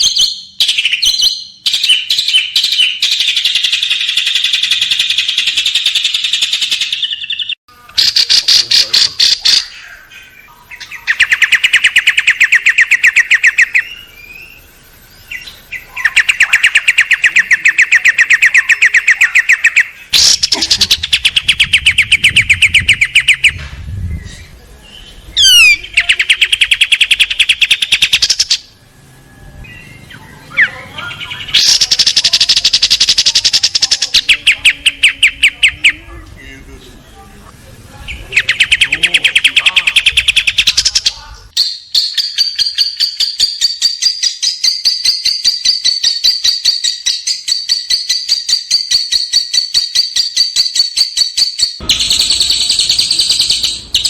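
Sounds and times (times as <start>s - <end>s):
songbird singing harsh rapid notes: 0.0s - 28.7s, 29.6s - 36.1s, 38.0s - 54.0s.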